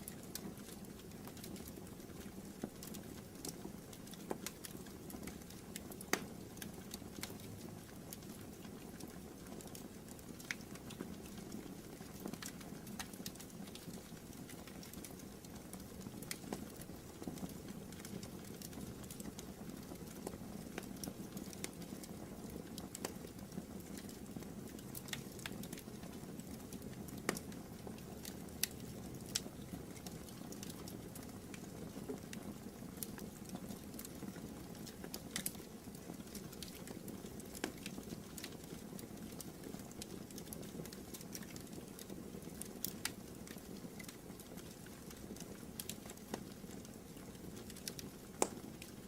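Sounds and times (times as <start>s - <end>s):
fire crackling and popping: 0.0s - 49.0s.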